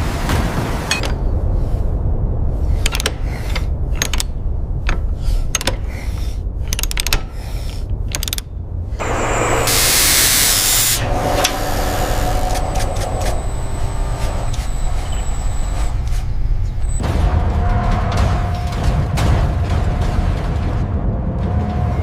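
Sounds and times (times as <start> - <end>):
machinery low rumble: 0.0 - 22.0
metallic clicks and clanks: 0.9 - 1.5, 2.7 - 8.6
humming drone: 8.9 - 18.8
loud hiss: 9.0 - 16.4.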